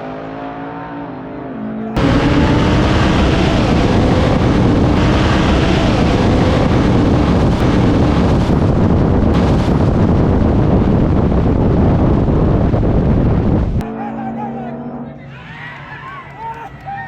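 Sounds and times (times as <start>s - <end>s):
heavy wind on microphone: 2.0s - 13.8s
car engine running: 2.0s - 15.2s.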